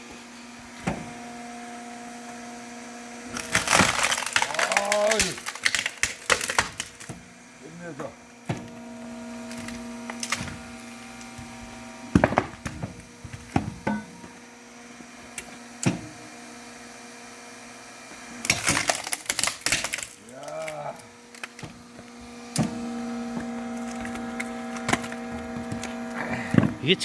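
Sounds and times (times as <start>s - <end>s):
log splitter motor humming: 0.0s - 27.0s
wood cracking and splintering: 3.3s - 7.2s, 9.4s - 11.5s, 18.4s - 26.7s.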